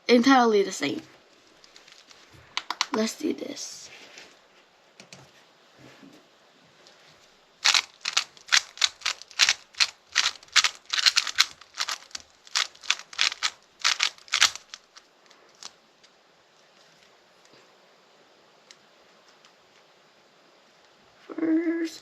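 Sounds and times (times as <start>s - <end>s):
puzzle cube plastic clacks: 1.6s - 3.1s, 7.6s - 15.8s.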